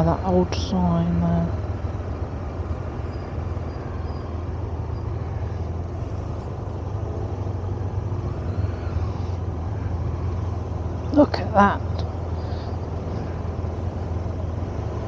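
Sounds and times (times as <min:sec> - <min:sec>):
motorcycle engine running at low revs: 0:00.0 - 0:15.0
road and wind noise: 0:00.0 - 0:15.0.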